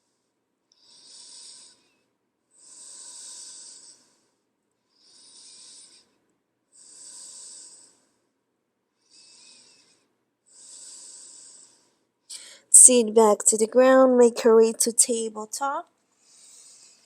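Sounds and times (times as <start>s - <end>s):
person breathing slowly: 0.0s - 8.4s, 9.0s - 12.7s, 16.2s - 17.0s.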